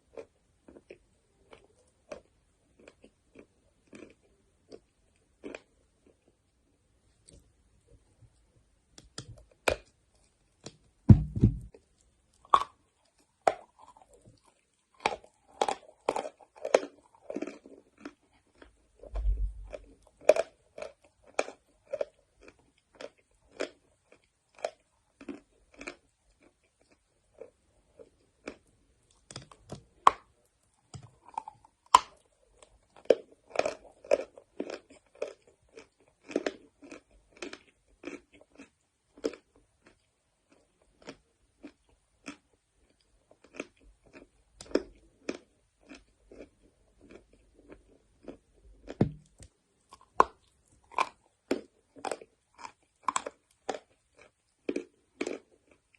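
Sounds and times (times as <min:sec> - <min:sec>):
person chewing chalk: 0:00.0 - 0:06.4, 0:12.3 - 0:55.9
dull low thumps: 0:11.1 - 0:11.8, 0:19.2 - 0:19.7.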